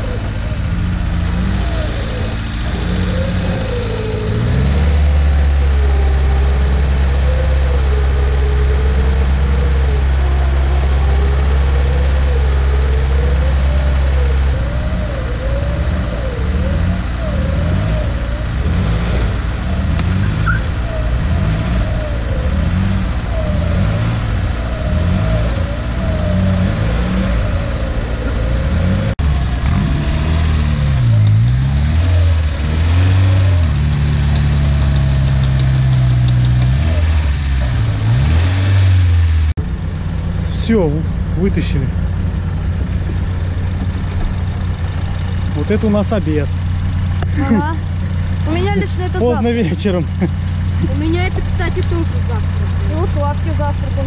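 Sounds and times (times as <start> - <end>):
wavering whine: 0.0 - 38.3
vehicle engine revving: 0.0 - 54.0.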